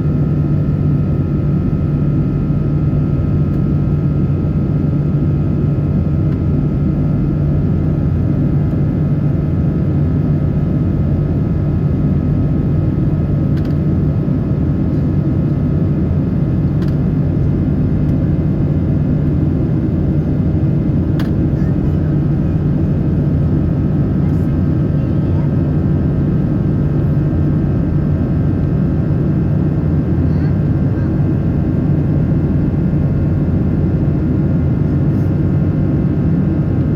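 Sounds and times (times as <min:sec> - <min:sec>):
airliner cabin roar: 0:08.2 - 0:36.9.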